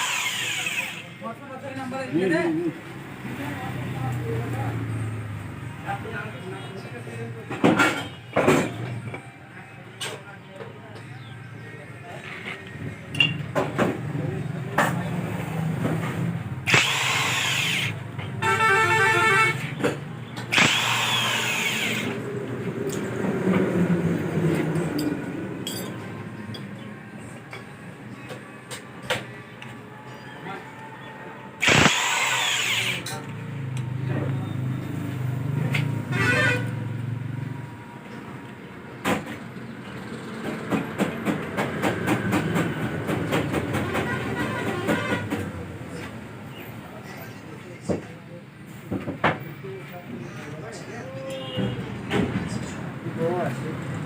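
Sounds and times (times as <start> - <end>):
vehicle horn honking: 18.4 - 19.8, 36.0 - 36.9, 43.9 - 45.4, 51.3 - 52.0
loud hissing bursts: 20.5 - 22.1, 31.6 - 33.0
mixed noise: 25.7 - 33.7
tools knocking on engine parts: 40.4 - 45.4.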